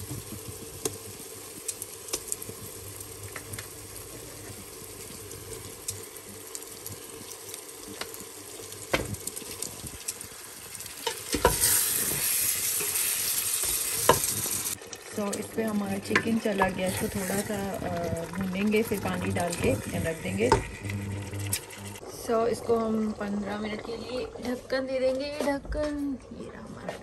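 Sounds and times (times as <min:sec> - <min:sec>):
masala sizzling in pot: 0:00.0 - 0:25.0
wooden spoon stirring and knocking: 0:16.0 - 0:22.0.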